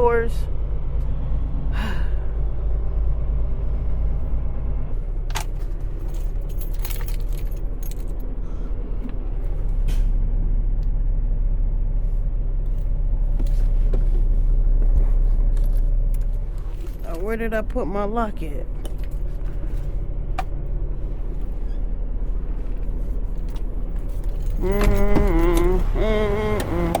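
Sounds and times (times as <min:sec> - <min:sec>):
diesel truck engine running: 0:00.0 - 0:27.0
metallic clanks and rattles: 0:05.2 - 0:08.4.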